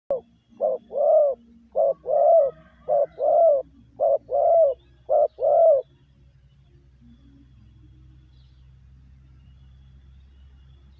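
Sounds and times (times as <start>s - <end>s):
dove cooing: 0.1s - 5.9s.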